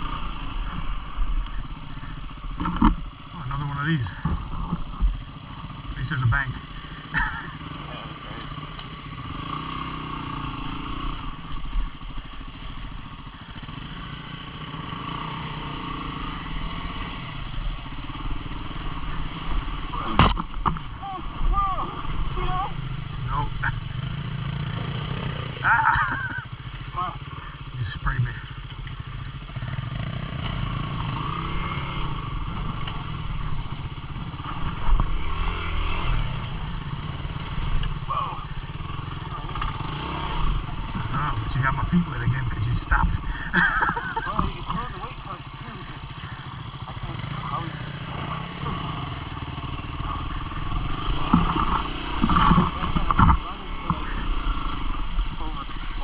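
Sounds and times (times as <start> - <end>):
motorcycle engine revving: 0.0 - 56.0
sharp thump: 20.1 - 20.9.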